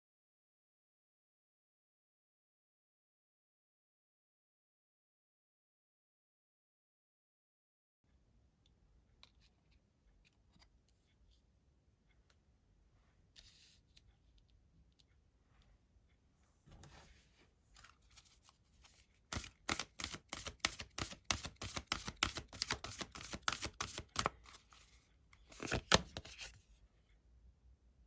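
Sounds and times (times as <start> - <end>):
cards being shuffled: 17.8 - 26.6.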